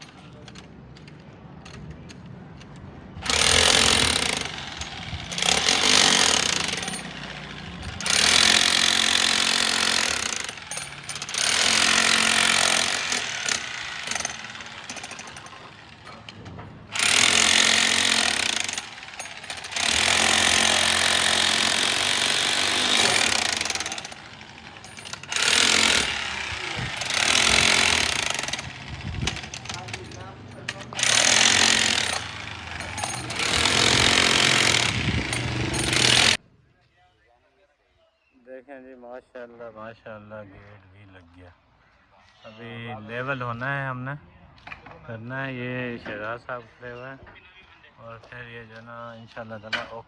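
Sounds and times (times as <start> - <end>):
jackhammer rattling: 3.2 - 36.4.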